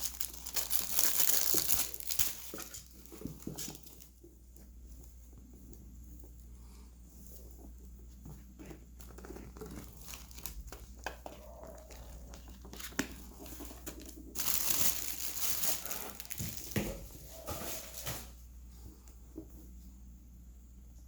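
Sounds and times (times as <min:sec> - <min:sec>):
packaging rustling and clicking: 0:00.0 - 0:04.1, 0:09.0 - 0:17.1
wrapping crinkling and tearing: 0:00.0 - 0:04.1, 0:09.0 - 0:17.0.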